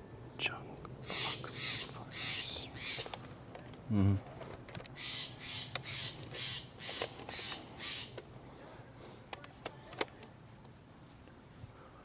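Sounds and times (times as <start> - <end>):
bird harsh calls: 1.0 - 3.2, 5.0 - 8.2.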